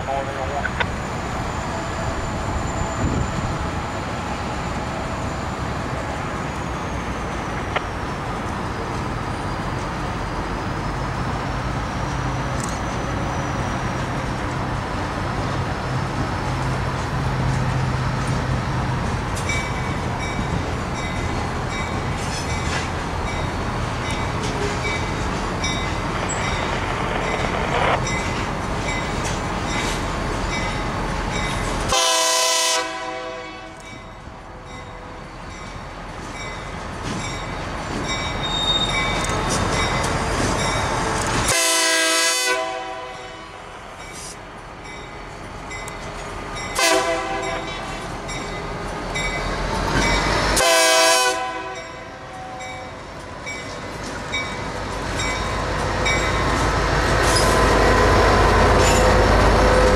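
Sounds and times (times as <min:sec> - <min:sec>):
sharp clicks of train wheels: 0:07.4 - 0:09.2, 0:11.9 - 0:13.1, 0:20.9 - 0:31.9, 0:36.1 - 0:41.6, 0:44.0 - 0:50.6, 0:53.0 - 0:59.9
diesel engine rumble: 0:20.0 - 0:31.8.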